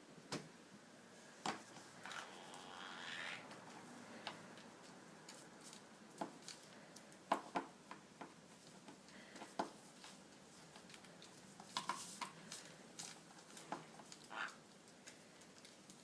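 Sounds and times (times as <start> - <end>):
soft rustle: 8.4 - 16.0.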